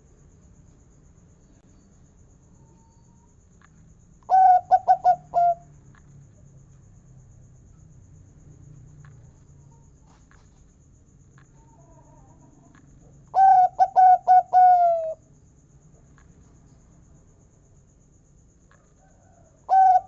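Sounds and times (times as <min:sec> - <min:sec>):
dove song: 0:01.5 - 0:06.4, 0:11.3 - 0:16.8, 0:18.4 - 0:20.0.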